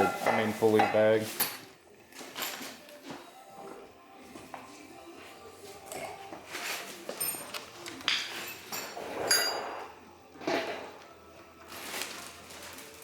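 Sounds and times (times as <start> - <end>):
metal tools clinking and knocking: 0.0 - 2.8, 7.1 - 9.9.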